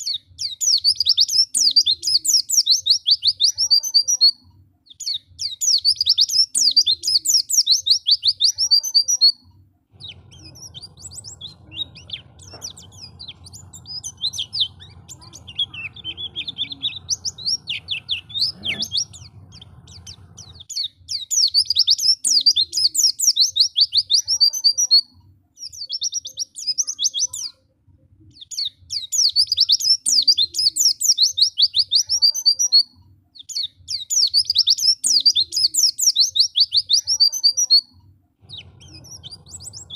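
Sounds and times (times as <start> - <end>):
bird high-pitched chattering song: 0.0 - 27.6, 28.3 - 39.9
low hum: 9.9 - 20.7.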